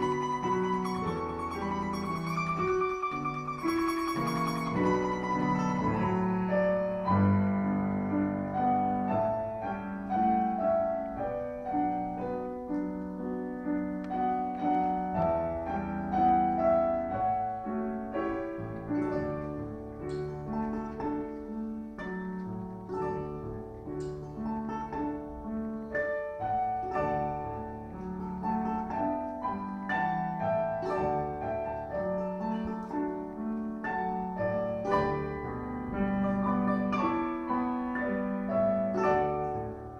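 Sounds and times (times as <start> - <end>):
domra folk melody: 0.0 - 39.9
piano accompaniment: 0.0 - 39.9.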